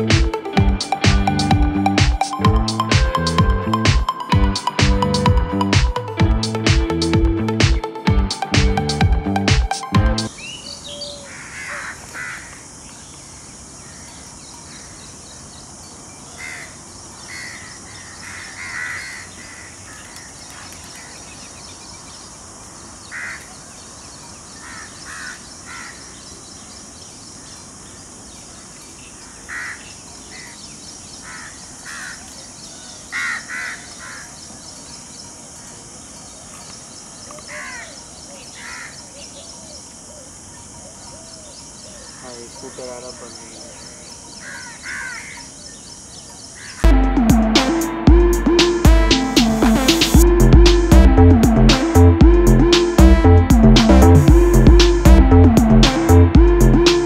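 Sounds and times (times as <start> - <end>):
steady high hiss: 0.0 - 57.0.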